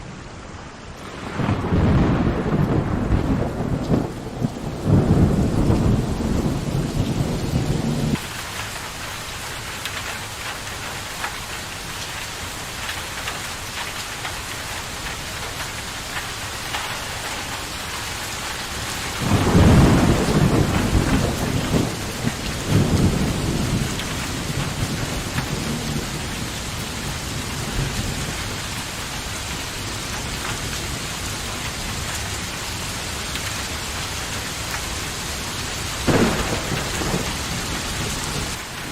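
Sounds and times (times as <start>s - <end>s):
heavy rain: 0.0s - 38.9s
thunder rumbling: 1.0s - 8.4s, 18.6s - 32.4s, 35.2s - 38.9s.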